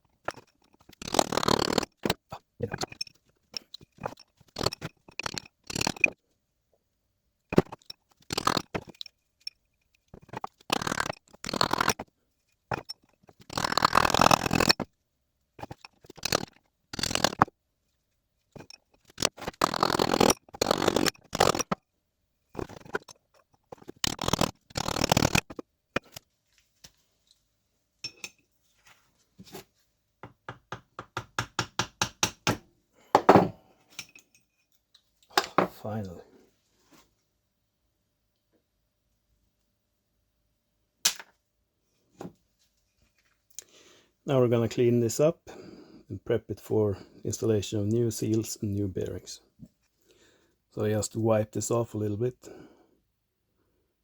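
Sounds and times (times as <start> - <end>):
tool scraping at metal seal: 0.2 - 6.2, 10.2 - 12.0, 12.7 - 14.8, 15.6 - 17.5, 18.6 - 21.8, 22.6 - 26.2.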